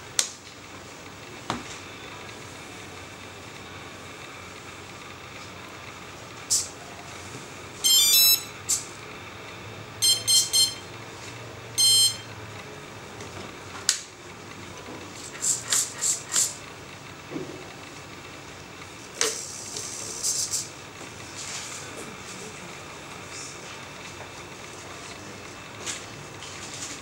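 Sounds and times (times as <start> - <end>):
electronic beep tones: 7.8 - 8.5, 10.0 - 10.9, 11.8 - 12.3.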